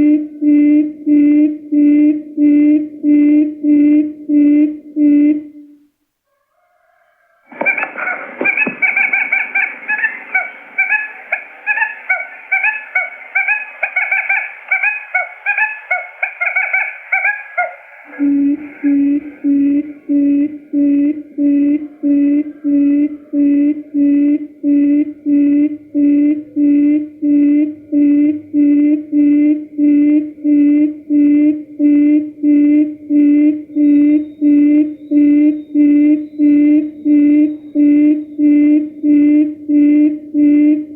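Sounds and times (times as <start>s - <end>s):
quail calls: 6.3s - 24.1s.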